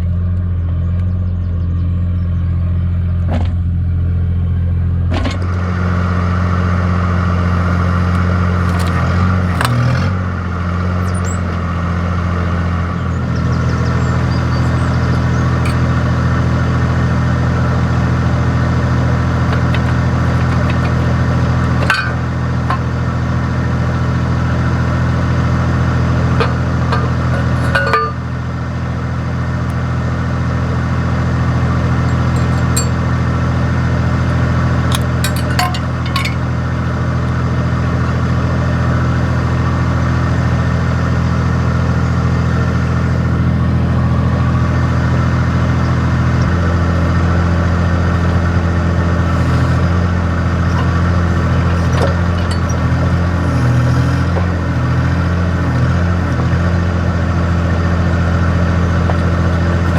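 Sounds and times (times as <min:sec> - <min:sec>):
excavator diesel engine running: 0:00.0 - 0:59.9
light metallic clinks: 0:32.0 - 0:33.1, 0:34.9 - 0:36.4.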